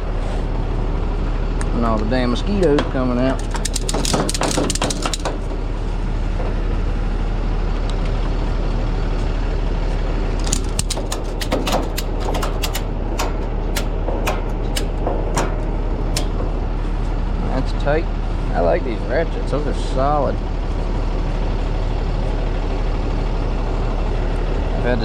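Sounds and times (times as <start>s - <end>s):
truck engine running: 0.0s - 25.0s
ratchet strap clicking: 3.4s - 5.4s, 10.4s - 16.4s.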